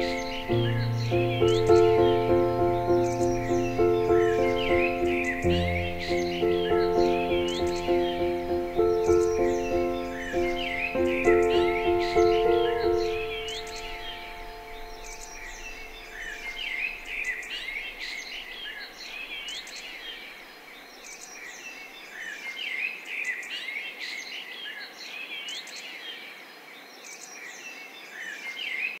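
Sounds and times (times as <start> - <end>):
music: 0.0 - 17.8
small birds chirping and singing: 0.0 - 29.0.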